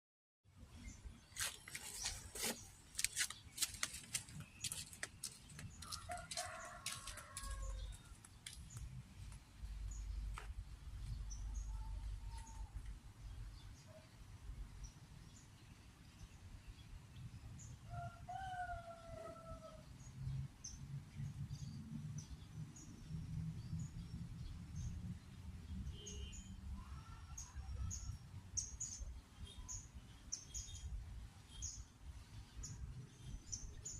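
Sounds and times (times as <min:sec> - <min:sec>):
small birds chirping: 0:00.7 - 0:14.1.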